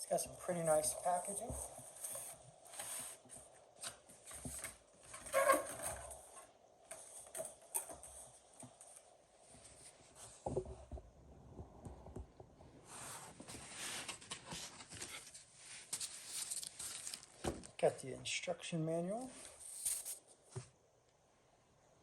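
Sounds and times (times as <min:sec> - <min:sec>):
cardboard packaging rustling: 0:00.6 - 0:09.1, 0:13.4 - 0:17.8, 0:19.4 - 0:20.2.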